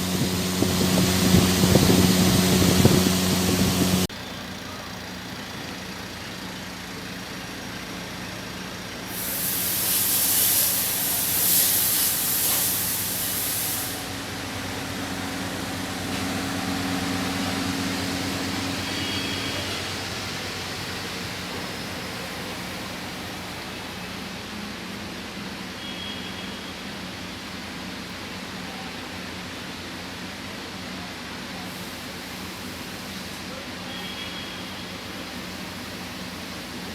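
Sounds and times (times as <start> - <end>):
loud hiss: 0.0 - 4.1, 9.0 - 24.1
cooler motor humming: 0.0 - 6.4, 14.0 - 23.2.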